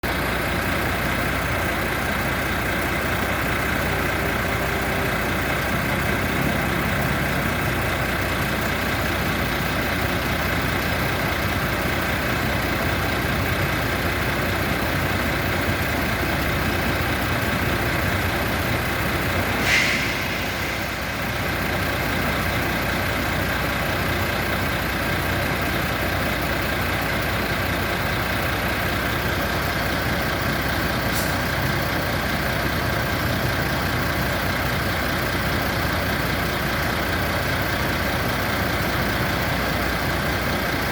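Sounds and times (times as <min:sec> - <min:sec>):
diesel bus engine idling: 0:00.0 - 0:40.9
short air hiss: 0:19.5 - 0:21.3.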